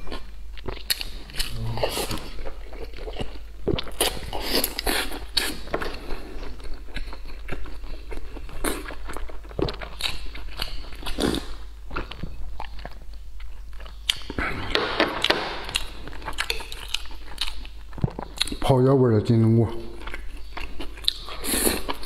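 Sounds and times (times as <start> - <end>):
wet chewing and smacking: 0.0 - 18.7, 19.8 - 22.0.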